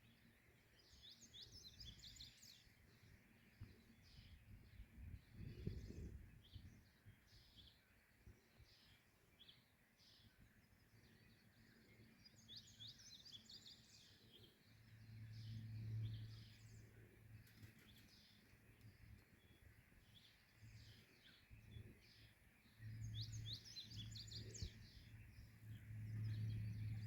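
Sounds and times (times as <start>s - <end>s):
small birds chirping faintly: 0.0s - 27.0s
low hum: 11.5s - 27.0s.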